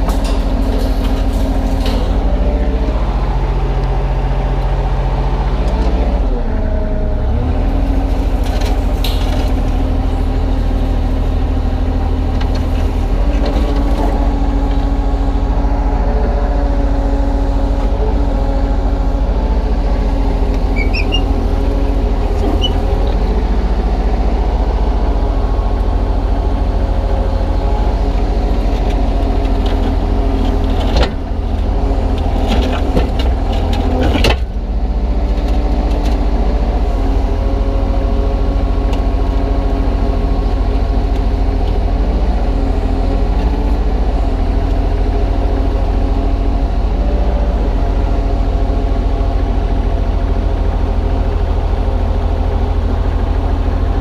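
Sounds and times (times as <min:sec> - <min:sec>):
knocks and rattles: 0:00.0 - 0:02.5
excavator diesel engine running: 0:00.0 - 0:54.0.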